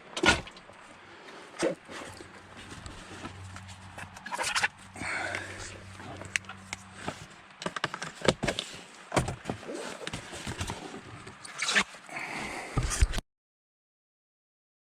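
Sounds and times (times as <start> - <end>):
irregular knocks clicks and scrapes: 1.6 - 11.9, 12.8 - 13.2.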